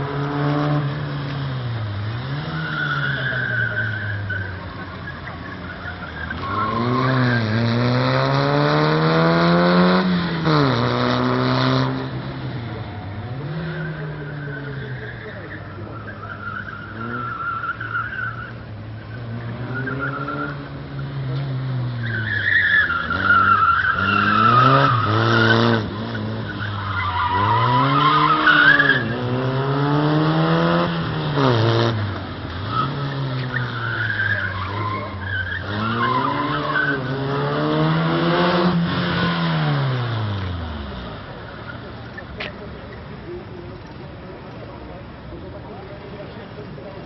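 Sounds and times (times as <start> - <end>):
car engine revving: 0.0 - 44.1
tyres squealing: 1.7 - 8.5, 13.3 - 40.2.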